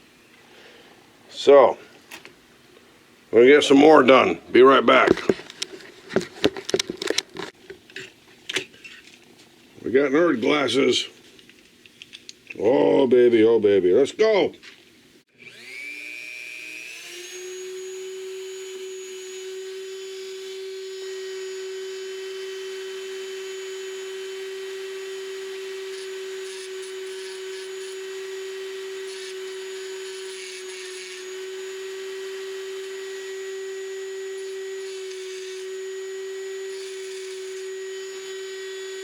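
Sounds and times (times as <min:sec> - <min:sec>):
rotary tool whining: 0:15.4 - 0:39.0
bit cutting metal scratchy noise: 0:24.3 - 0:39.0.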